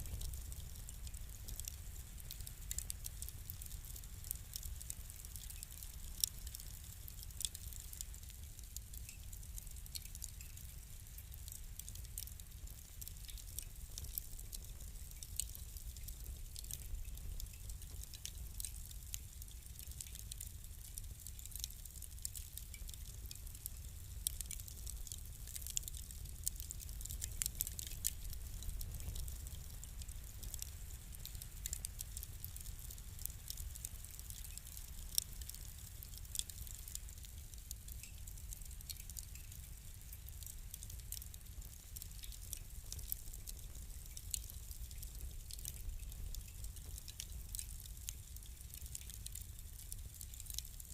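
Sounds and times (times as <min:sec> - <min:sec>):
fire crackling and popping: 0:00.0 - 0:50.9
low rumble of fire: 0:00.0 - 0:50.9.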